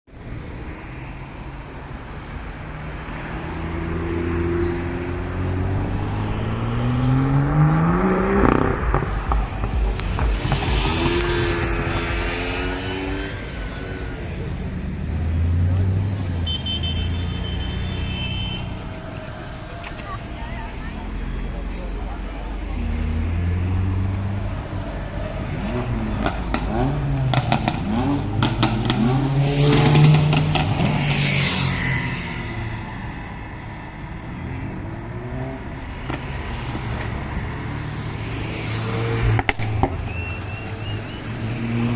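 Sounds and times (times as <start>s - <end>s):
sports car engine revving: 3.5s - 16.2s, 25.2s - 32.6s.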